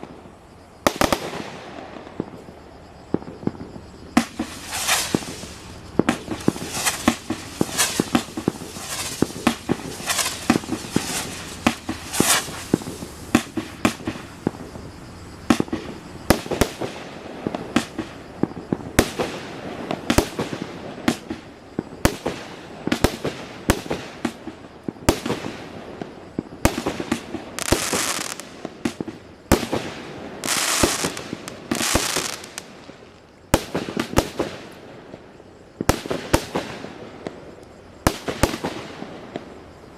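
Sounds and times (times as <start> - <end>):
firework bangs: 0.0 - 35.2, 35.8 - 37.4, 38.0 - 39.6
firework hissing: 3.6 - 18.3, 27.1 - 28.6, 29.6 - 34.8.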